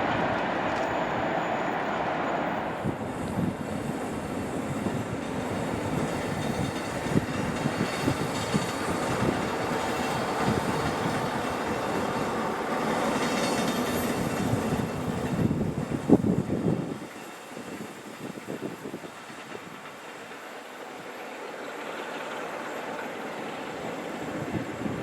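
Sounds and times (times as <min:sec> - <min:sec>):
train running past: 0:00.0 - 0:25.0
wheels clacking over rail joints: 0:04.7 - 0:16.4.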